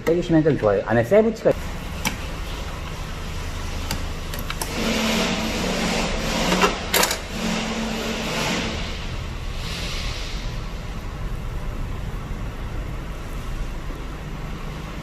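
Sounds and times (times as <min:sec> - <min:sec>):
connector clicking and scraping: 0:03.8 - 0:08.6.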